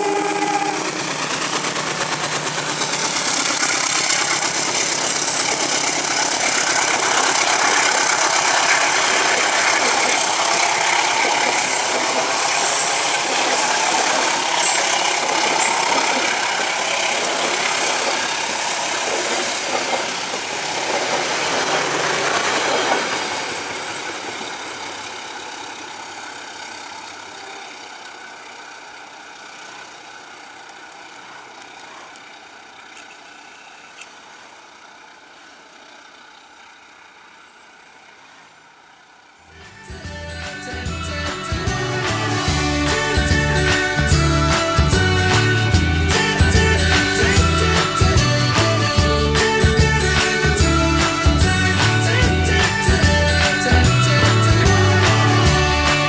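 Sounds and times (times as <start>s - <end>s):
train wheels on rails: 0.0s - 39.5s
diesel locomotive engine running: 0.0s - 56.0s.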